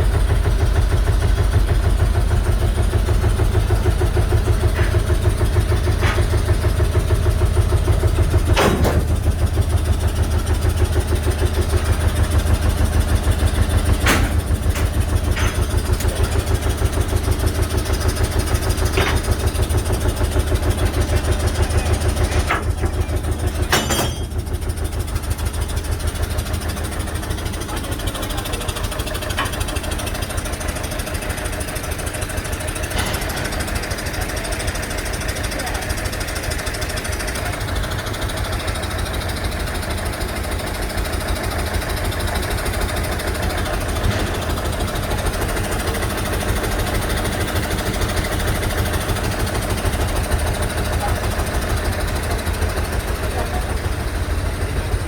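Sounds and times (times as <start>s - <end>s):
large engine idling: 0.0s - 55.0s
sharp metallic clanks: 13.9s - 16.2s, 21.7s - 24.5s, 32.5s - 35.4s.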